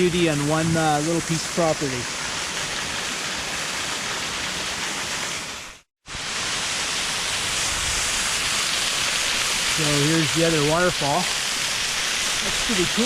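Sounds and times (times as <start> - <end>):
waterfall rushing: 6.1 - 13.0.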